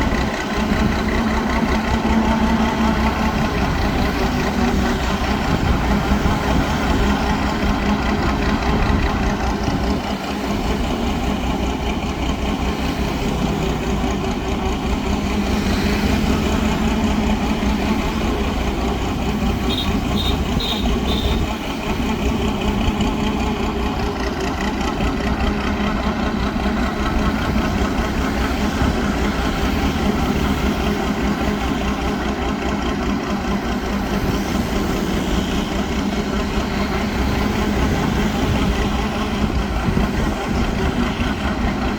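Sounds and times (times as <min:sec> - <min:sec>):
boat engine running steadily: 0:00.0 - 0:41.9.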